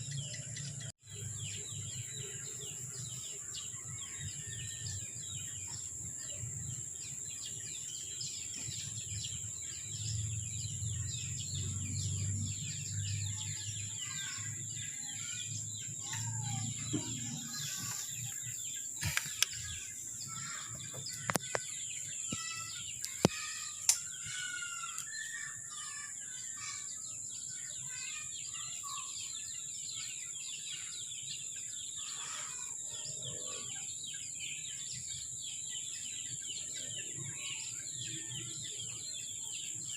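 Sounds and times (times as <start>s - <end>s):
small birds chirping: 0.0s - 39.9s
sharp clicks: 19.0s - 19.7s, 23.0s - 24.1s.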